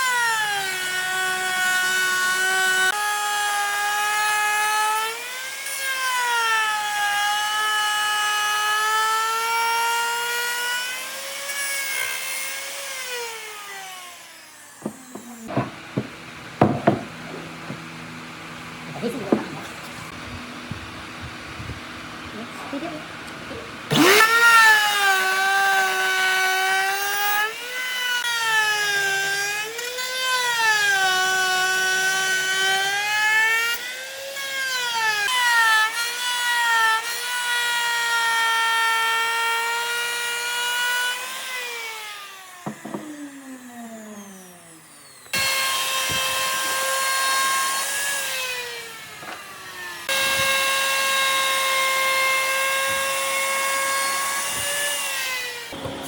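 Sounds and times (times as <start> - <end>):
power tool whining on wood: 0.0 - 56.0.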